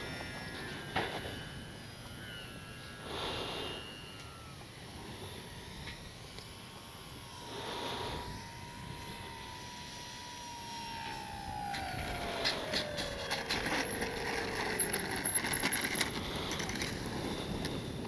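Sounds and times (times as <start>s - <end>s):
model plane motor whining: 0.0s - 18.0s
breathy swells of noise: 2.9s - 4.2s.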